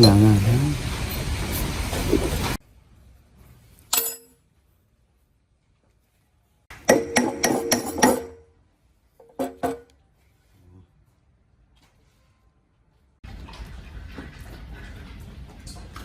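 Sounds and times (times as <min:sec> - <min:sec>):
metal parts clinking when struck: 0:03.9 - 0:04.4, 0:06.9 - 0:08.4.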